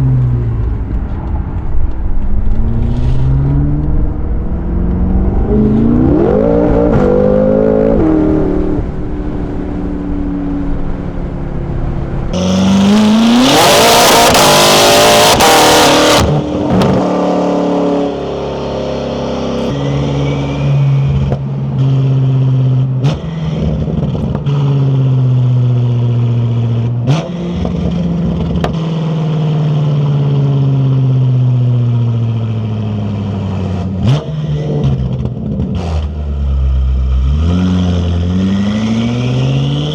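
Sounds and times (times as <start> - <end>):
exhaust cracks: 0.0 - 6.0
car engine revving: 0.0 - 39.9.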